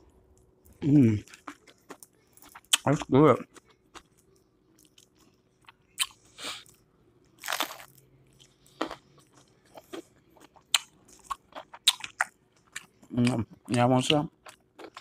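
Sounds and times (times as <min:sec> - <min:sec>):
crunching fried food: 0:07.3 - 0:15.0.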